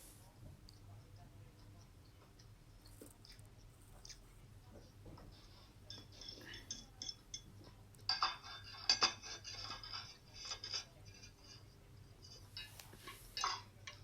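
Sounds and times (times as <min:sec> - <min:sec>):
cutlery scraping on a plate: 0:05.2 - 0:14.0.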